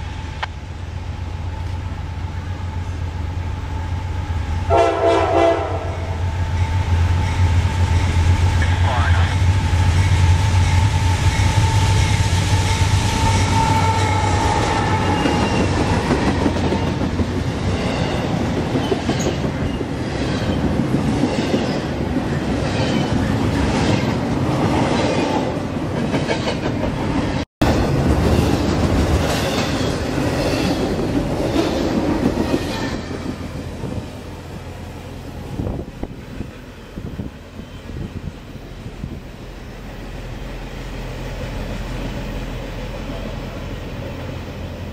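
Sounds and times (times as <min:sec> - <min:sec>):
diesel locomotive engine: 0:00.0 - 0:44.9
train wheels clickety-clack: 0:10.0 - 0:34.0.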